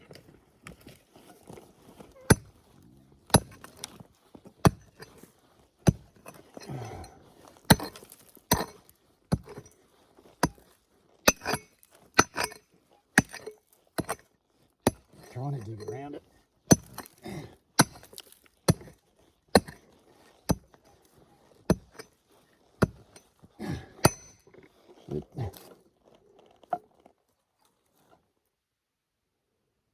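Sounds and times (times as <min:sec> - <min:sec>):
pick striking clay ground: 0:00.7 - 0:24.6.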